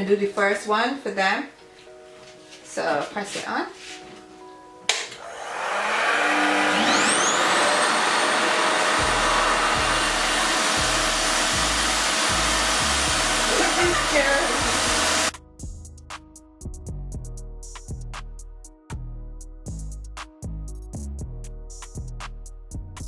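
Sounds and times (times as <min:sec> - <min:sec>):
hair dryer rushing air: 0:04.9 - 0:15.3.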